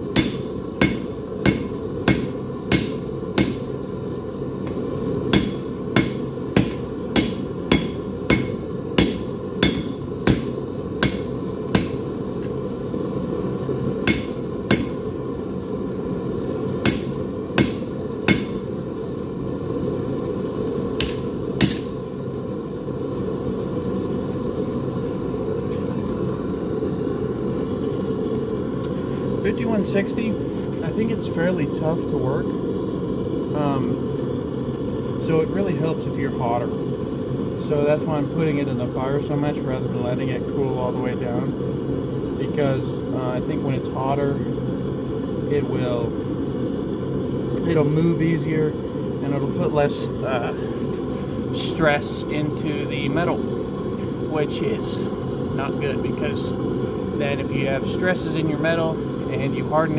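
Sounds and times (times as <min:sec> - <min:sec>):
hammer striking hot steel: 0:00.0 - 0:03.8, 0:04.6 - 0:12.6, 0:14.0 - 0:15.2, 0:16.8 - 0:18.8, 0:21.0 - 0:22.1
steady low rush: 0:00.0 - 0:59.9.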